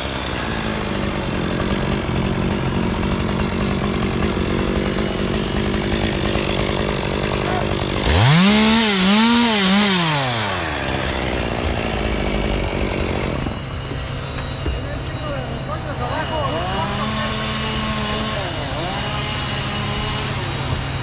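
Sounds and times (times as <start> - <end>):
chainsaw idling and revving: 0.0 - 21.0.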